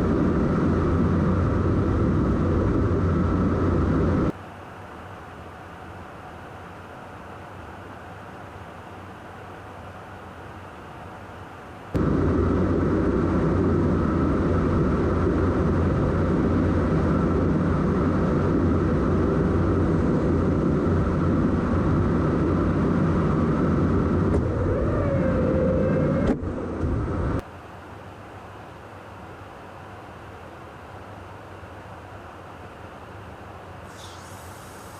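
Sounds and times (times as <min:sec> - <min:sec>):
jet aircraft noise: 0:00.0 - 0:04.4, 0:11.9 - 0:27.4
faint whine: 0:00.0 - 0:34.9.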